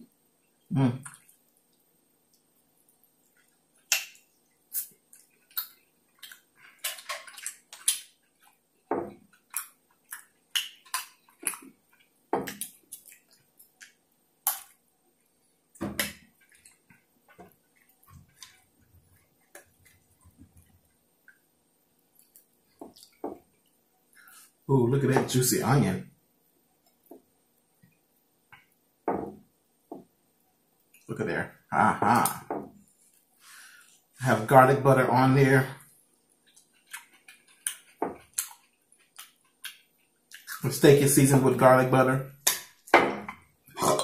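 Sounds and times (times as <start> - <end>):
chewing steak wet mouth smacks: 3.2 - 8.6, 9.2 - 14.8, 36.4 - 40.5.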